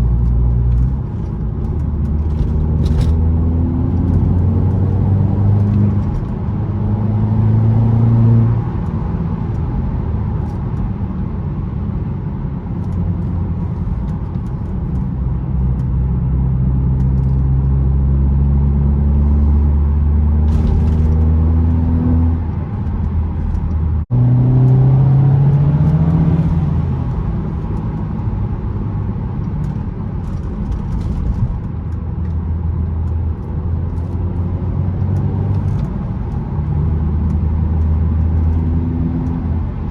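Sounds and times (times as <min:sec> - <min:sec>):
car engine accelerating: 0:00.0 - 0:09.7, 0:12.8 - 0:39.9.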